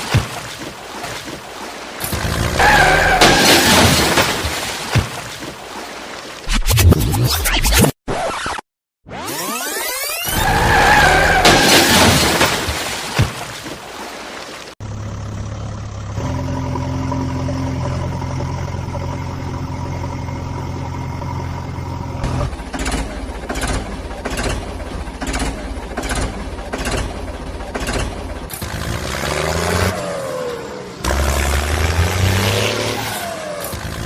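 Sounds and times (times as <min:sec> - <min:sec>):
engine humming and revving: 0:02.0 - 0:03.8, 0:14.8 - 0:34.0.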